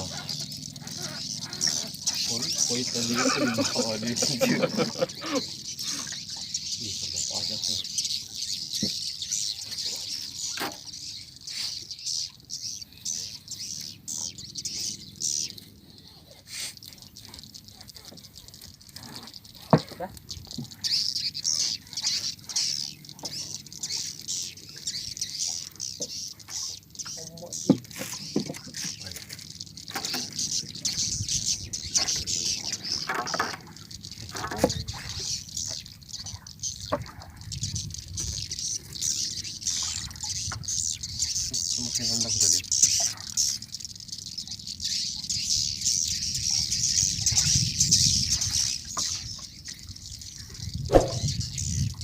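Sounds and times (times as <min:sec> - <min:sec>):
swiftlets twittering: 0:00.0 - 0:15.6
flock of birds twittering: 0:00.0 - 0:52.0.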